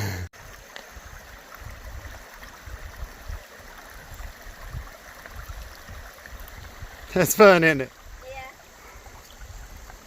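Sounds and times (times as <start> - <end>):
water running over rocks: 0.4 - 10.0.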